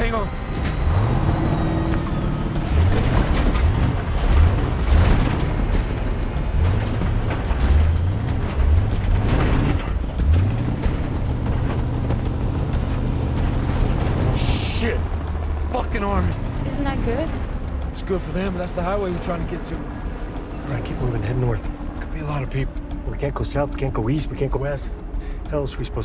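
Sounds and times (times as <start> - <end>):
car body knocking and rattling: 0.0 - 15.7
car engine revving: 0.0 - 25.2.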